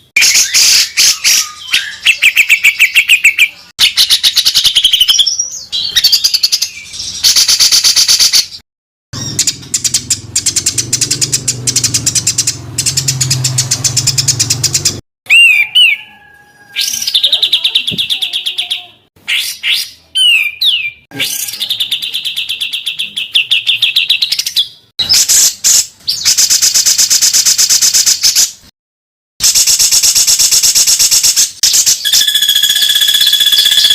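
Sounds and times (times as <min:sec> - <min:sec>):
sharp curved bird whistles: 0:09.2 - 0:16.1, 0:29.5 - 0:33.9
songbird harsh trills: 0:09.2 - 0:22.5, 0:31.7 - 0:33.9.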